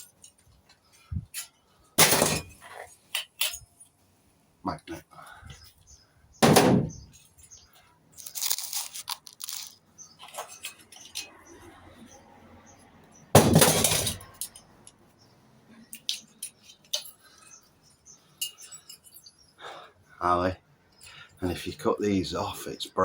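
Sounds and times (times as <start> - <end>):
metal scrap clattering: 1.3 - 3.6, 13.4 - 14.6
loud metal crash: 6.4 - 6.9, 13.4 - 14.2
light metal clinks: 13.8 - 15.0, 15.8 - 19.5.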